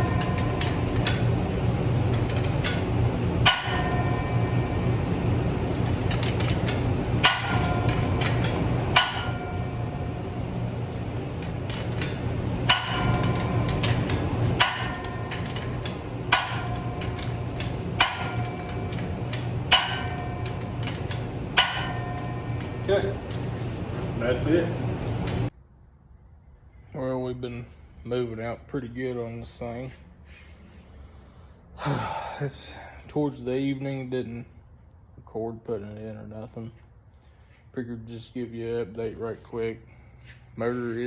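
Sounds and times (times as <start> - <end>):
low hum: 0.0 - 25.5
metallic tool clanks: 0.0 - 25.5.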